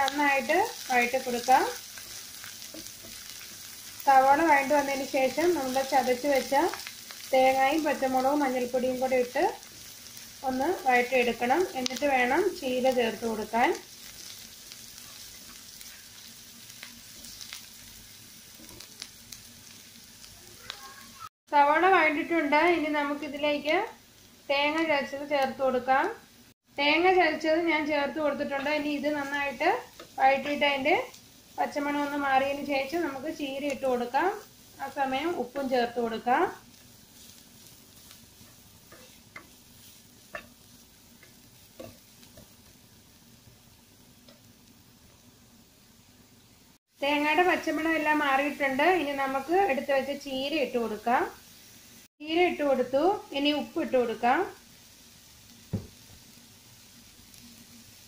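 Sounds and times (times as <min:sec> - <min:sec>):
onions sizzling in oil: 0:00.0 - 0:58.0
spatula scraping a pan: 0:14.0 - 0:17.6, 0:36.7 - 0:42.8.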